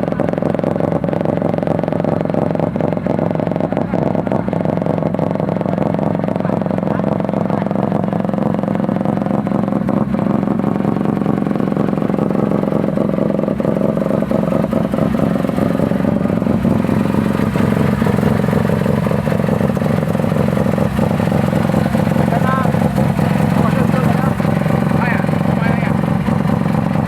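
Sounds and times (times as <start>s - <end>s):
rotary engine at high revs: 0.0s - 27.0s.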